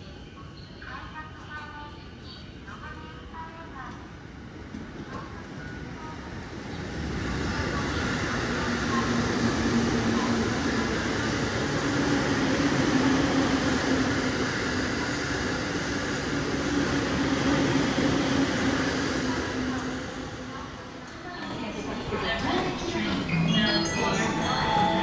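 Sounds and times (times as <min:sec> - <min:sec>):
train rumble and rail noise: 0:00.0 - 0:25.0.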